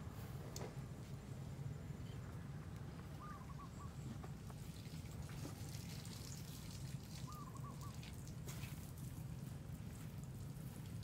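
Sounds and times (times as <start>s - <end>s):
bird calling: 3.1s - 4.3s, 7.2s - 8.0s.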